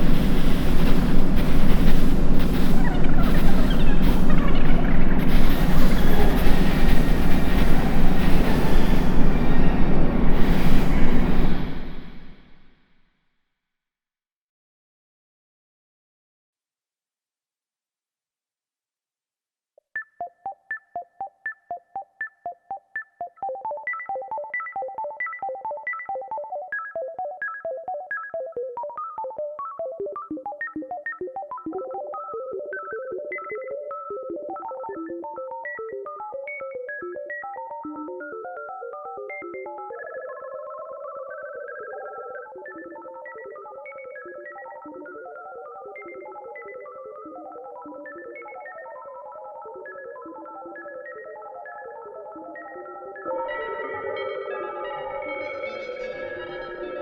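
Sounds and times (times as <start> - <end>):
held synth tones: 0.0 - 12.4
synthesized bell-like notes: 0.0 - 12.4, 52.6 - 57.0.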